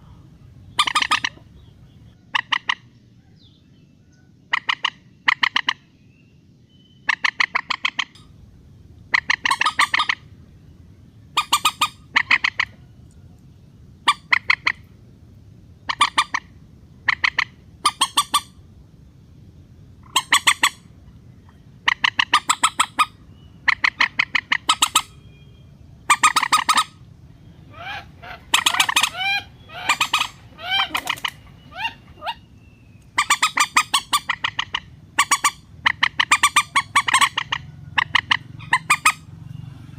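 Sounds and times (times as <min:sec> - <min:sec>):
rail bird clucking calls: 0:00.0 - 0:06.0, 0:06.8 - 0:08.3, 0:09.0 - 0:10.4, 0:11.3 - 0:15.0, 0:15.8 - 0:18.6, 0:20.0 - 0:25.4, 0:26.0 - 0:39.6
low steady hum: 0:00.0 - 0:39.9
squealing bending bird notes: 0:21.5 - 0:39.9.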